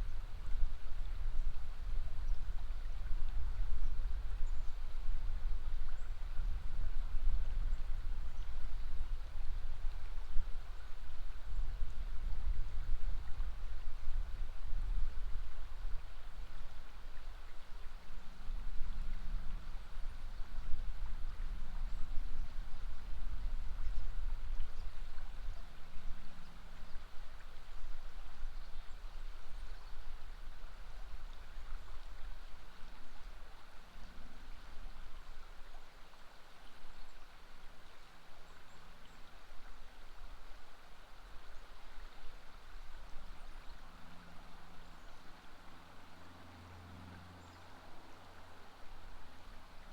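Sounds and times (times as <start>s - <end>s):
river water rushing: 30.2s - 49.9s.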